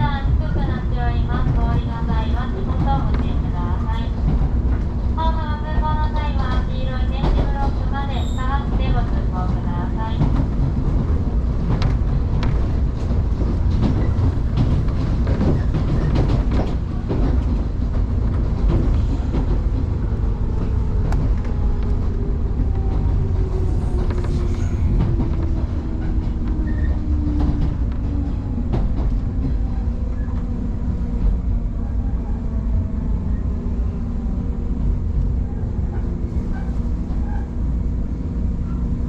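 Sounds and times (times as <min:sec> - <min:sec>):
train whine: 0:00.0 - 0:39.0
train wheels clacking: 0:05.7 - 0:30.4.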